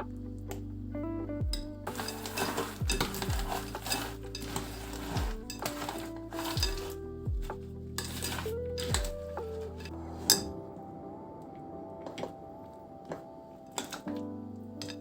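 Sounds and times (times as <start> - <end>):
soft background music: 0.0 - 15.0
utensil clinking against cookware: 1.9 - 6.9.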